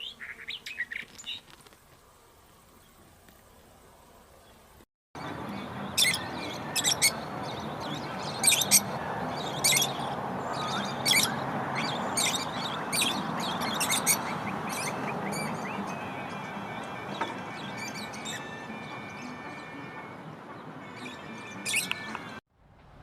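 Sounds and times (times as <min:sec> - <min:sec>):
birds chirping: 0:00.0 - 0:01.6, 0:02.4 - 0:22.4
steady background hiss: 0:00.0 - 0:04.8.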